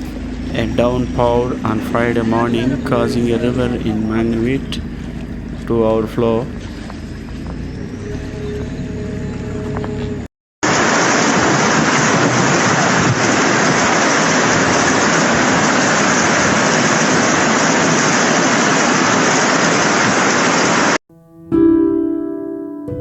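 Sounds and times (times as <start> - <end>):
background music: 0.0 - 4.9, 21.1 - 23.0
heavy rain pouring: 0.0 - 6.9, 10.6 - 21.0.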